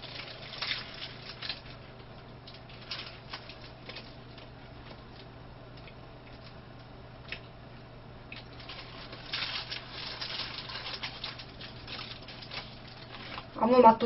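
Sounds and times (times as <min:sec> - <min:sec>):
wet chewing sounds: 0:00.0 - 0:07.6.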